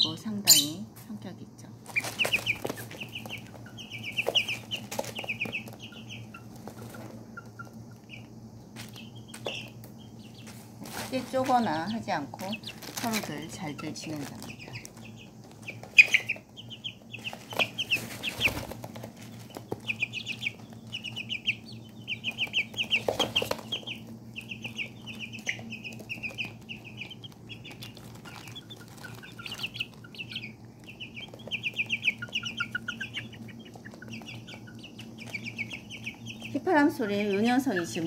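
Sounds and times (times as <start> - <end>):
chicks peeping: 0.0 - 38.0
steady low hum: 0.0 - 38.0.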